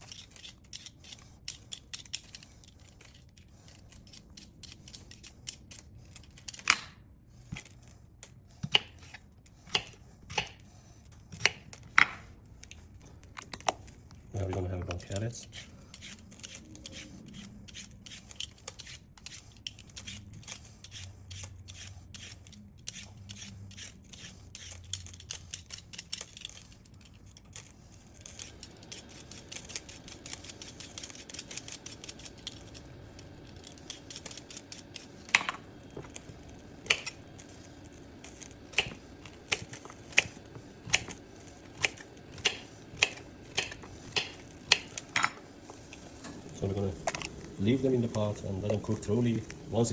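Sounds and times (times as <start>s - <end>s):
knife cutting carrots on board: 8.6s - 12.3s, 38.3s - 45.4s.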